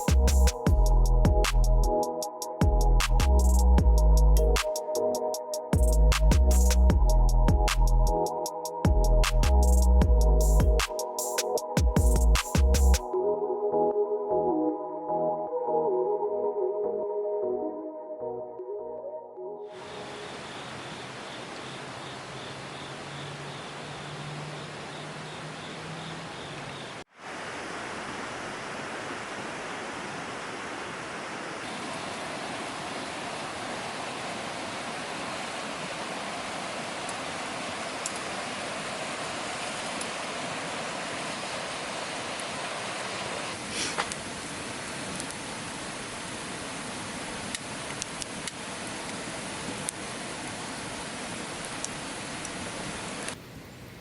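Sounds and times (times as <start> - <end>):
water rushing: 19.7 - 53.4.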